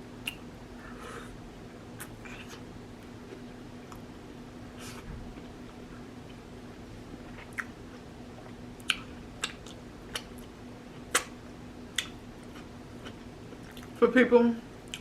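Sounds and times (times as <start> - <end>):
faint steady hum: 0.0 - 15.0
wet mouth smacks while chewing: 8.8 - 10.5, 11.9 - 12.2.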